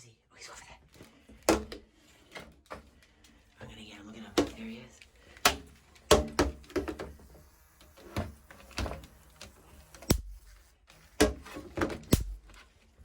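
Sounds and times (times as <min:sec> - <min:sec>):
bug zapper knocks and clicks: 0:05.4 - 0:12.6.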